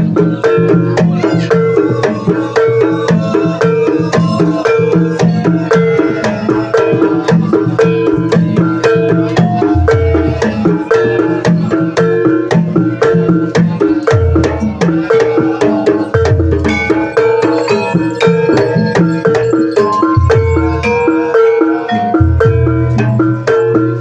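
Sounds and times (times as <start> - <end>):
hand drum strokes: 0.0 - 24.0
tuned keys struck fast: 11.3 - 24.0.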